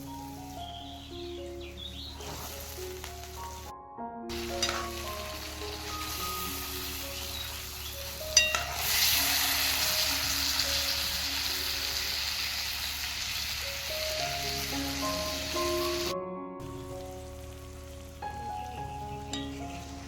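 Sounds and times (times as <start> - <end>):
food sizzling in hot oil: 0.0 - 3.7, 4.3 - 20.0
soft background music: 0.0 - 20.0
sharp clink on pan: 8.4 - 8.9.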